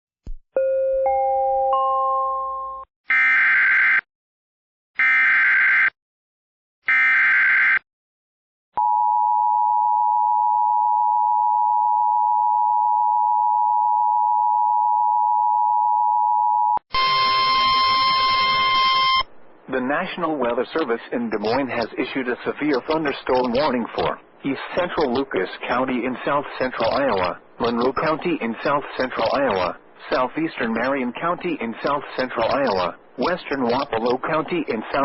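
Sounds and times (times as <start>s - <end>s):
harsh buzzing tone: 16.9s - 19.3s
two-tone attention signal: 16.9s - 19.3s
screeching digital data tones: 17.0s - 19.3s.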